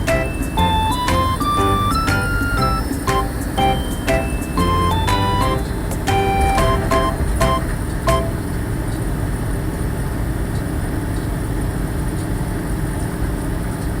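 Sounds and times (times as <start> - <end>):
chime-like melody: 0.0 - 8.5.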